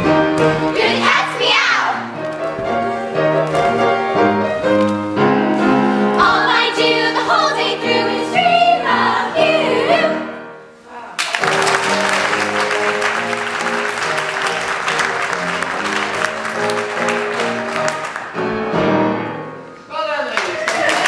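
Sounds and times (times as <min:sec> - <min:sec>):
group of voices singing: 0:00.6 - 0:02.1, 0:06.0 - 0:10.4
applause: 0:11.2 - 0:18.4, 0:20.3 - 0:21.0
instrumental accompaniment: 0:11.4 - 0:19.9.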